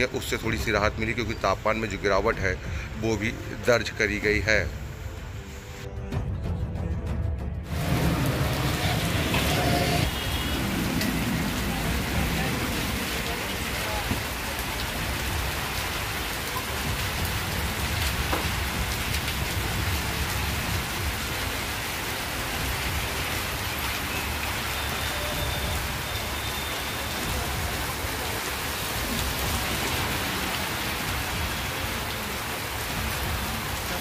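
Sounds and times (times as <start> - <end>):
heavy rain on standing water: 7.7 - 34.0.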